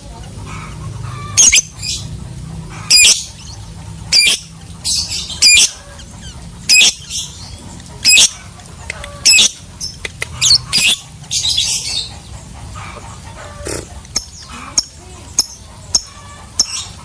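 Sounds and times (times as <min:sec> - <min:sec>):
soft scratchy bird chatter: 0:00.0 - 0:17.0
lovebird shrill chirps: 0:10.4 - 0:11.0.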